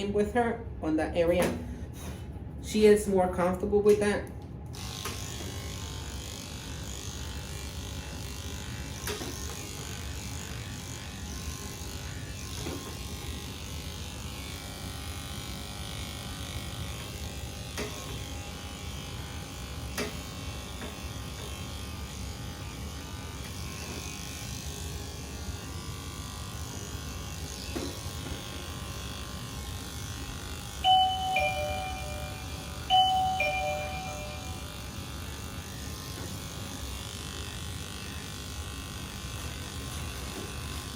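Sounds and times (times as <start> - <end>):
electric pet clippers running: 3.8 - 40.9
chime: 30.9 - 34.7.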